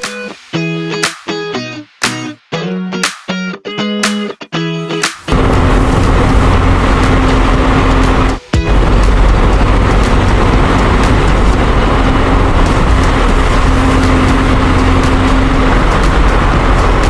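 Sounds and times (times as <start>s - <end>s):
road noise hiss: 5.0s - 17.0s
vehicle engine rumbling: 5.3s - 17.0s.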